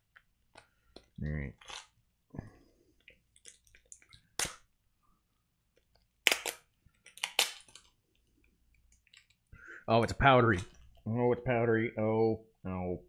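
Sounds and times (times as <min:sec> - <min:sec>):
plastic wrapper crinkling: 0:05.7 - 0:09.4.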